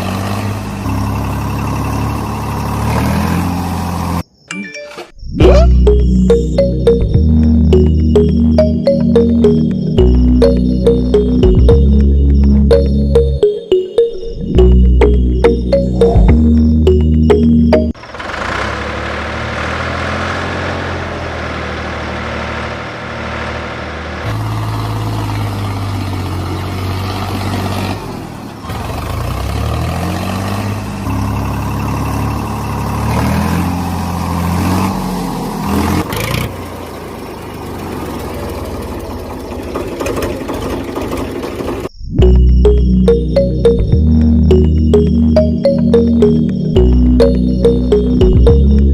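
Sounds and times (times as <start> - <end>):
engine revving: 0.0 - 4.2, 14.6 - 41.9.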